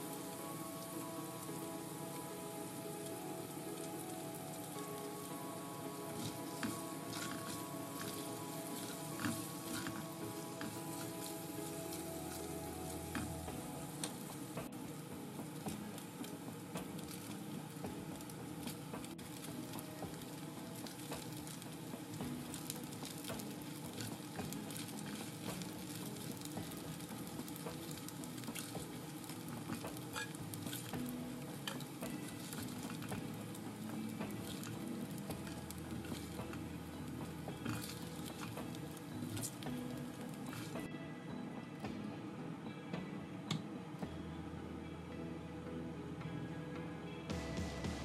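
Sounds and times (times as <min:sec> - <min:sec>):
cheese sizzling in hot oil: 0:00.0 - 0:40.9
spatula scraping pan: 0:06.1 - 0:13.4, 0:28.3 - 0:30.9, 0:37.7 - 0:38.6.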